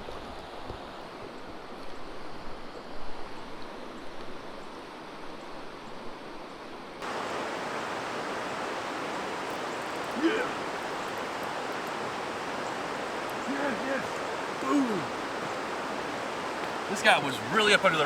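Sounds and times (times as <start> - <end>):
creek rushing over rocks: 7.0 - 18.0.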